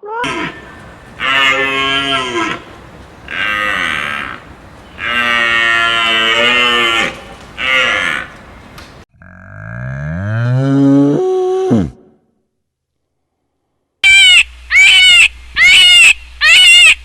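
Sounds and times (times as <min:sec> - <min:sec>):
cow mooing: 0:00.2 - 0:09.0.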